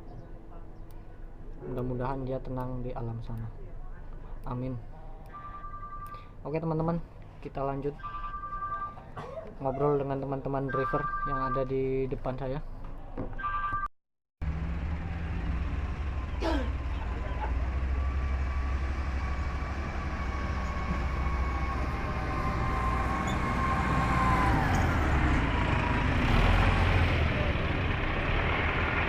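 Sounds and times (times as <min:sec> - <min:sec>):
truck engine rumbling: 0:14.4 - 0:29.0
short falling squeak: 0:23.0 - 0:23.9.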